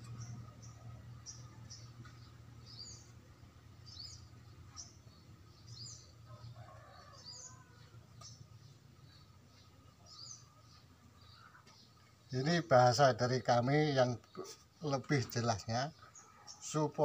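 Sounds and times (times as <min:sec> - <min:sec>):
low steady hum: 0:00.0 - 0:06.8
faint bird chirping: 0:00.0 - 0:17.0.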